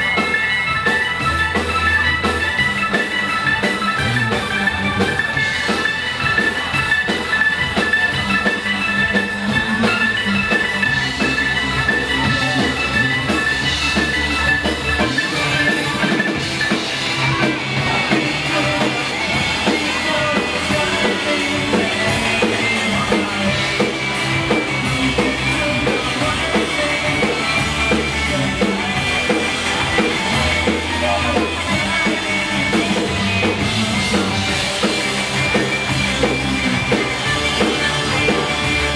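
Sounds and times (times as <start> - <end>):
bass: 0.0 - 38.9
drum kit beat: 0.0 - 38.9.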